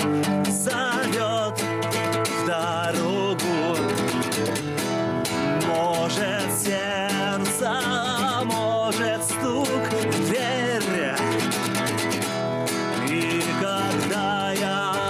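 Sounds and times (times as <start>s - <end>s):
person singing: 0.0s - 4.6s, 5.2s - 15.0s
nylon-string guitar strummed: 0.0s - 15.0s.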